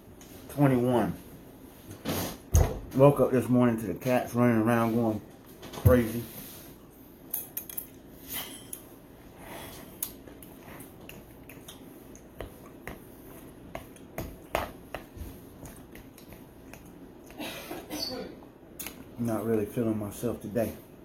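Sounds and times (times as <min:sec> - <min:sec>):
quiet chewing: 0:09.7 - 0:17.4.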